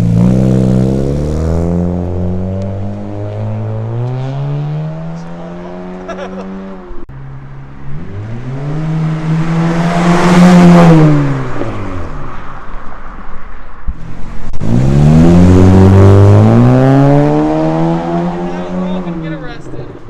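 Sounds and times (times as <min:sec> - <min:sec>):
car engine accelerating hard: 0:07.8 - 0:12.2, 0:14.0 - 0:20.0.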